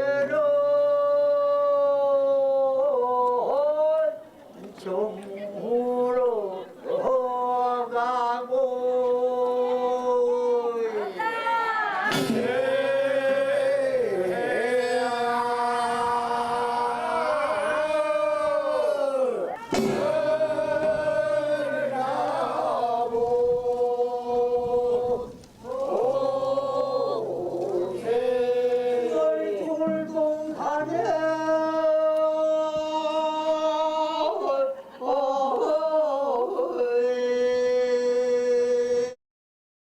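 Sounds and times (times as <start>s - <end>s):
person singing long held notes: 11.9s - 39.2s.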